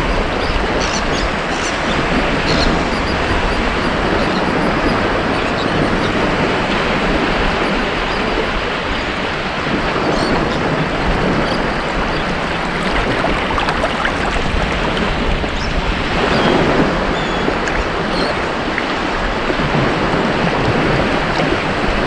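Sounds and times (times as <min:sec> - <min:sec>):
waves breaking on beach: 0:00.0 - 0:22.0
faint high fizzing: 0:11.4 - 0:15.4.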